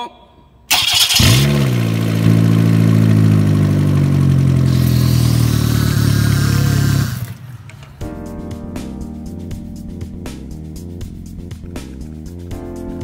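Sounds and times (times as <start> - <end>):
car engine idling: 0.7 - 7.9.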